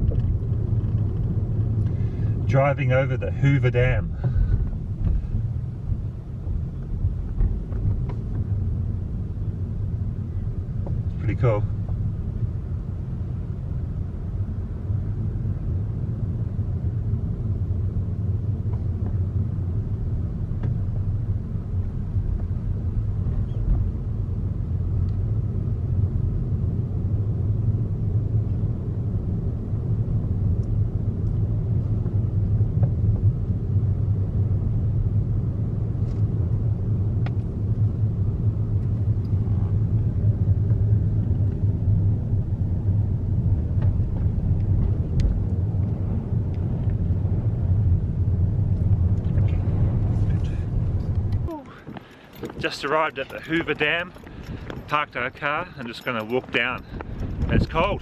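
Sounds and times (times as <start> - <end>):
car driving on road: 0.0 - 58.0.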